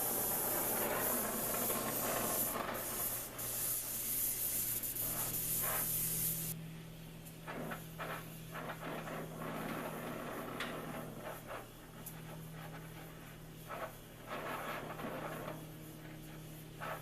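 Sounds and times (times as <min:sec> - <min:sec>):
abrasive rubbing on steel blade: 0:00.0 - 0:06.6.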